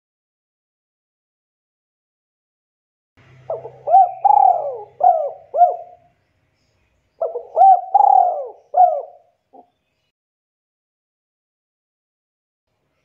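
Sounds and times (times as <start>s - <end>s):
dove cooing: 3.5s - 6.1s, 7.2s - 9.7s.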